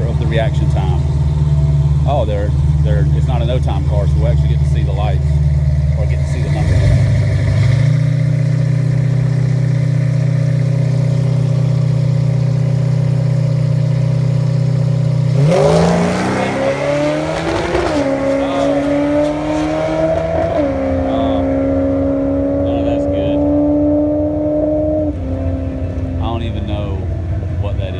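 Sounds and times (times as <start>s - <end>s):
drag car engine revving: 0.0s - 27.9s.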